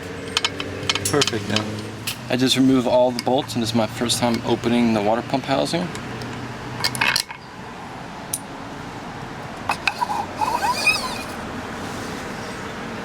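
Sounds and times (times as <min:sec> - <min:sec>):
metal clinks and knocks: 0:00.2 - 0:01.9, 0:09.7 - 0:10.2
brief squeak: 0:09.7 - 0:11.4.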